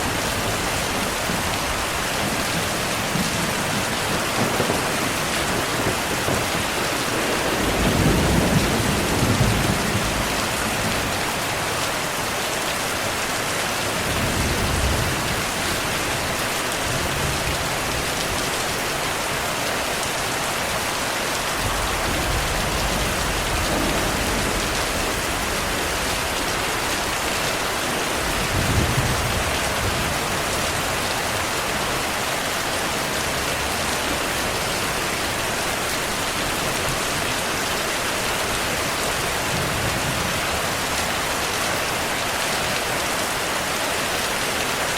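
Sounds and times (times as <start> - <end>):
heavy rainfall: 0.0 - 44.9
thunder rolling: 1.2 - 11.3, 21.6 - 27.4, 28.0 - 31.0.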